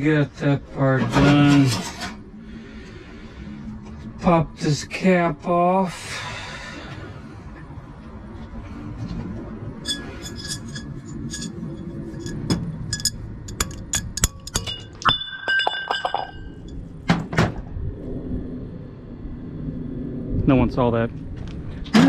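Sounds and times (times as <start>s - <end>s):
metal piece ringing: 9.8s - 16.9s
metal tools clinking: 9.9s - 16.8s.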